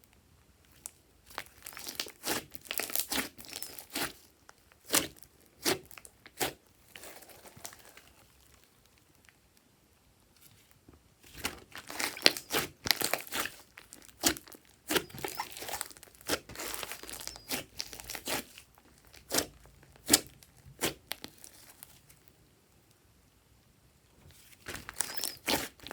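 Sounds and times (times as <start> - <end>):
slime popping and crackling: 0.8 - 4.2, 11.3 - 22.1, 24.6 - 25.9.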